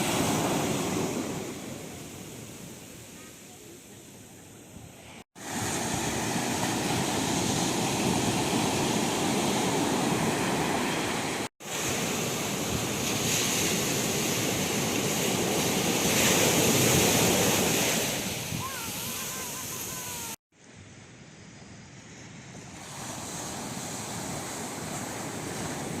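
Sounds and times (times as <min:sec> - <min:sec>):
surf breaking on beach: 0:00.0 - 0:03.8, 0:05.0 - 0:20.4.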